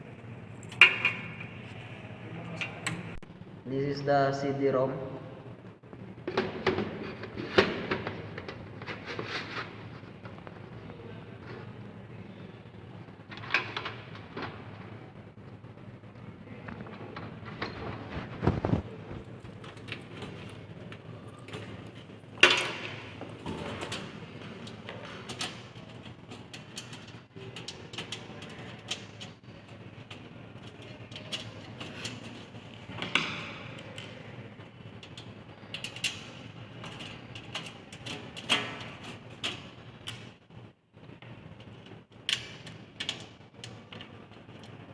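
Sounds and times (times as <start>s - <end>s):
computer case parts clicking and knocking: 16.8s - 40.4s.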